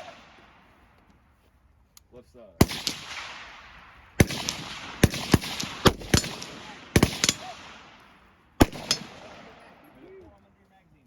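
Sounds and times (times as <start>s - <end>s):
rifle shots with echo: 0.0s - 0.8s, 2.6s - 10.1s.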